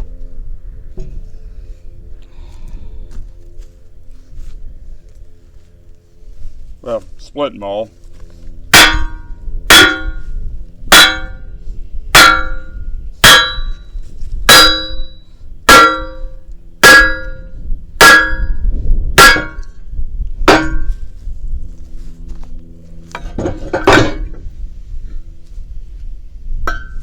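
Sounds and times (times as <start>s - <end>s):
hammer clanging on steel: 8.7s - 11.5s, 12.1s - 13.8s, 14.5s - 18.6s, 19.2s - 19.7s, 20.5s - 21.0s, 23.2s - 24.4s, 26.7s - 27.0s.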